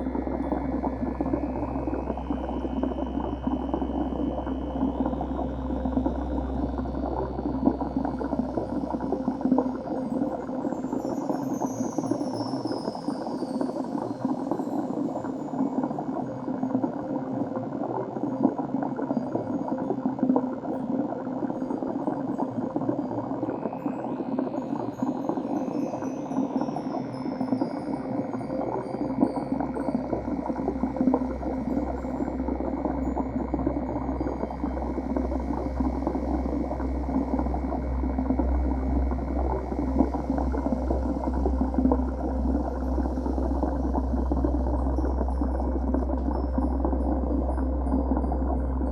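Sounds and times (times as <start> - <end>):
bubbling churning water: 0.0 - 48.9
water bubbling underwater: 29.7 - 48.9
low hum: 31.0 - 48.9.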